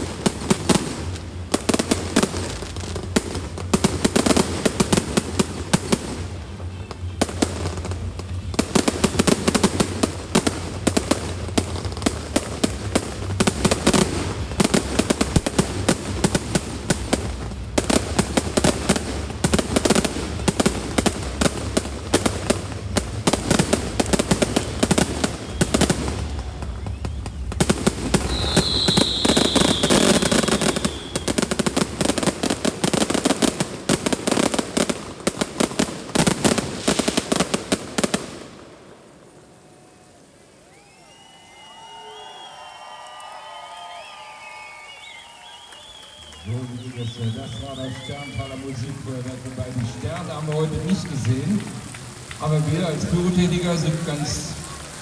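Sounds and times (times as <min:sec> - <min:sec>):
fireworks crackling and banging: 0:00.0 - 0:55.0
music: 0:01.4 - 0:32.2.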